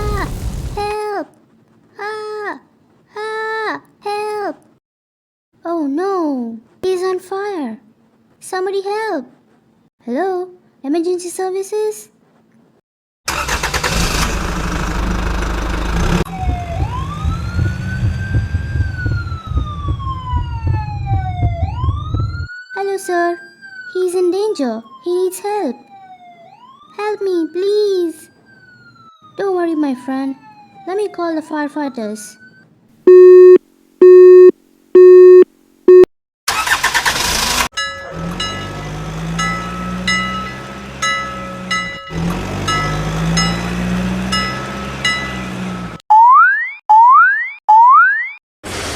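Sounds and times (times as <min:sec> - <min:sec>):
engine rumbling: 0:13.3 - 0:22.5, 0:36.5 - 0:46.0
emergency siren wailing: 0:16.2 - 0:33.6, 0:37.8 - 0:46.0
telephone calling tone beeps: 0:32.5 - 0:36.1
repeating beeps: 0:33.1 - 0:36.1.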